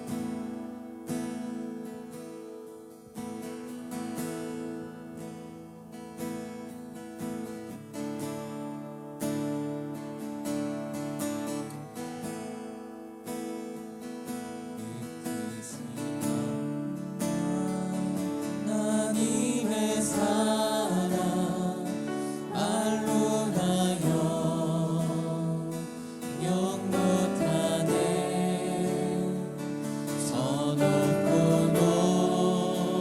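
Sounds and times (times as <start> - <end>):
strummed acoustic guitar: 0.0 - 33.0
group of voices singing: 18.6 - 33.0.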